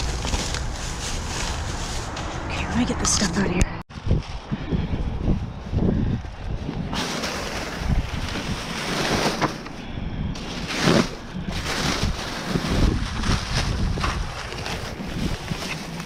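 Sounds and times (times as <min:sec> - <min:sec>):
plastic bags crinkling: 0:00.0 - 0:02.2, 0:10.4 - 0:16.0.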